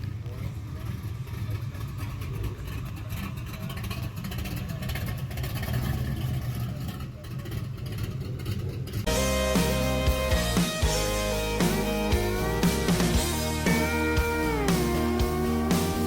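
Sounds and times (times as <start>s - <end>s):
car engine rumbling: 0.0s - 16.0s
music with guitar and drums: 9.1s - 16.0s.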